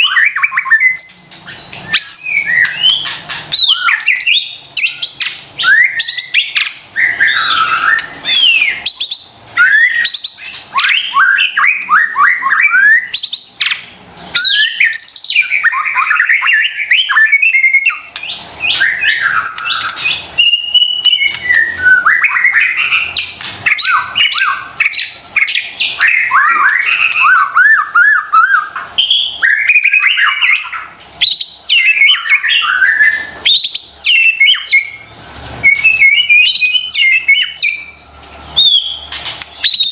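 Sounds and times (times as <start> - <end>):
songbird singing whistles and trills: 0.0 - 13.8, 14.4 - 39.9.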